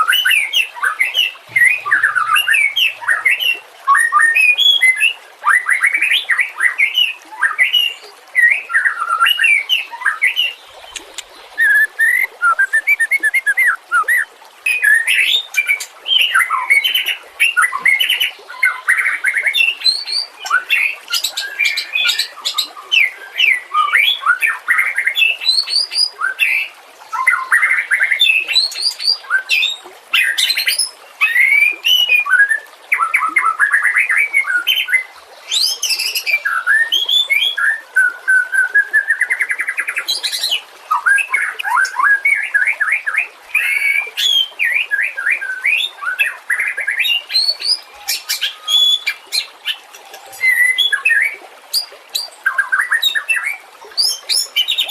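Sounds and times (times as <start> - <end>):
bird singing whistled trills: 0.0 - 5.9, 8.4 - 15.5.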